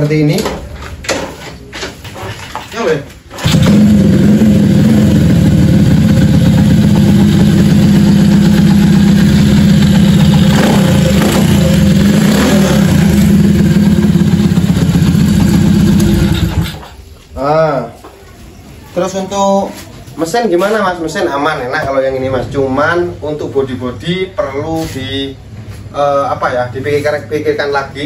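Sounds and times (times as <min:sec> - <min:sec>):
motorcycle engine idling and revving: 0:03.3 - 0:17.0.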